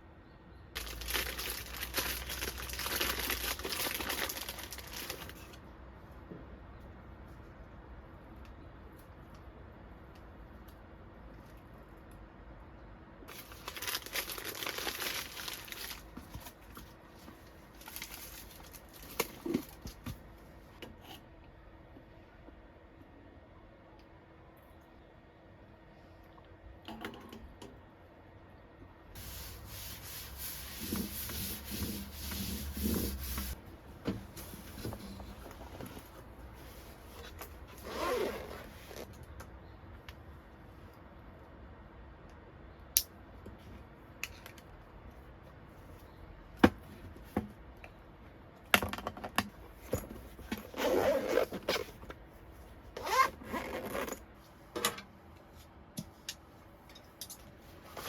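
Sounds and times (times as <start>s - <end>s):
rustling and rubbing: 29.2s - 33.6s.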